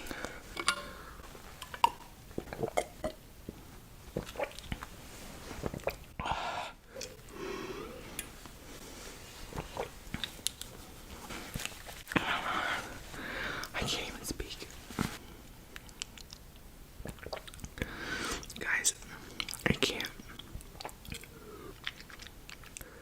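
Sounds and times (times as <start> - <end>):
breathy sound: 0.0 - 1.3, 6.2 - 8.3
wet mouth clicks: 5.6 - 6.2, 9.5 - 10.8, 15.7 - 18.7, 19.4 - 22.9
close chewing noodles: 19.3 - 23.0.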